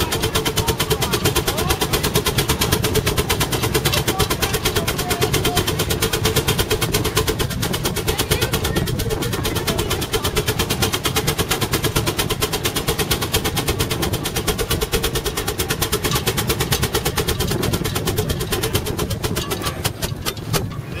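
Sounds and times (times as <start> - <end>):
low engine rumble: 0.0 - 21.0
steam engine exhaust chuffing: 0.0 - 21.0.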